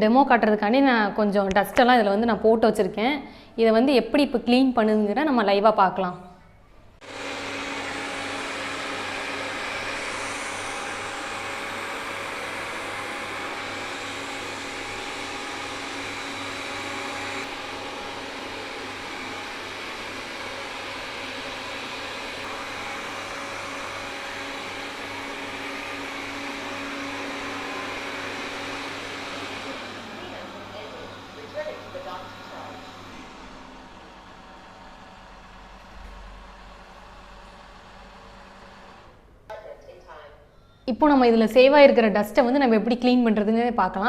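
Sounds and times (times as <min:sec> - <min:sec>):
robot vacuum whirring: 0:07.0 - 0:39.2.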